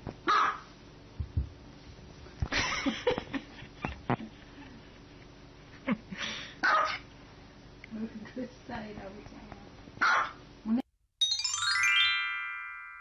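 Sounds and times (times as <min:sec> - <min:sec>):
small dog yapping: 0:00.2 - 0:00.7, 0:06.6 - 0:07.0, 0:10.0 - 0:10.4
light knocks and thumps: 0:01.2 - 0:02.6.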